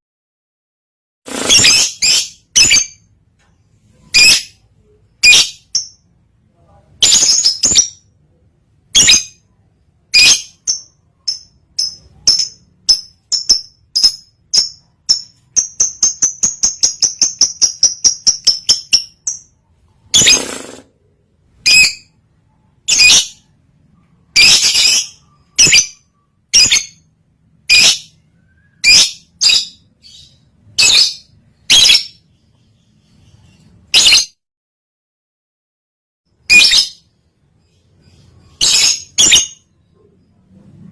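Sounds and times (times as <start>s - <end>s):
lovebird shrill chirps: 1.3s - 3.0s, 8.9s - 9.4s, 10.1s - 20.8s, 21.6s - 22.2s, 22.8s - 23.5s, 24.3s - 32.2s, 33.9s - 34.4s, 36.4s - 37.1s, 37.7s - 39.7s.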